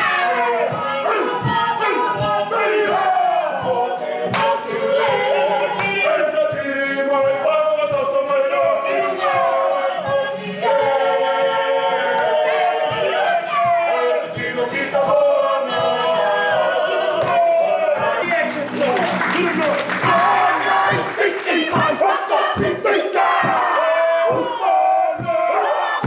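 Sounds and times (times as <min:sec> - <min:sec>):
group singing and chanting: 0:00.0 - 0:26.0.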